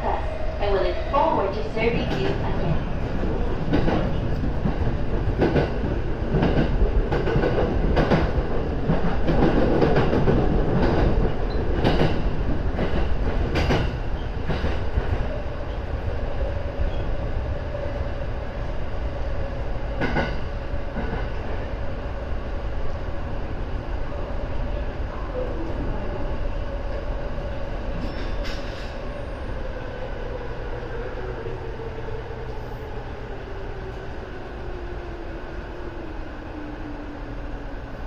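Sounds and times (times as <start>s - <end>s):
steady train whine: 0.0s - 38.0s
train wheels clacking: 3.6s - 15.3s.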